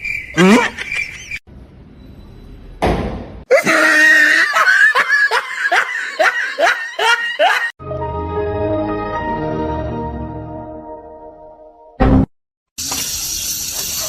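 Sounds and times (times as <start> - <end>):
person laughing: 0.4 - 1.4, 3.5 - 7.7
music: 7.8 - 12.0.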